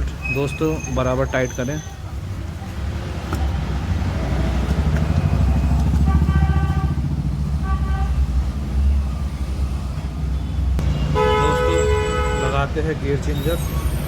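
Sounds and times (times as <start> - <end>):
vehicle engine rumbling: 0.0 - 14.0
vehicle horn honking: 5.9 - 8.2, 10.4 - 13.8.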